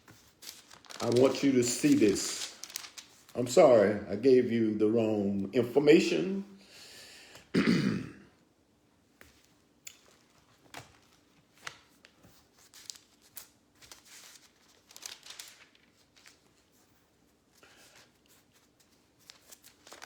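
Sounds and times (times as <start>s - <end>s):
thin pages turning and rustling: 0.0s - 3.4s, 9.3s - 20.0s.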